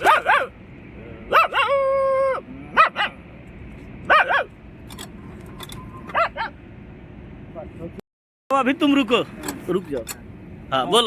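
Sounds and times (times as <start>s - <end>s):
man imitating dog barking: 1.3s - 3.2s.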